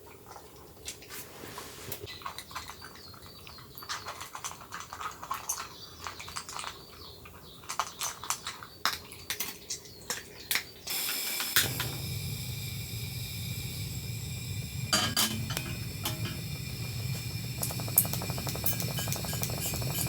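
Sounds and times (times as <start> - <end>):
small hard objects clicking: 2.1 - 11.2, 15.4 - 20.0
low hum with high tones: 10.9 - 20.0.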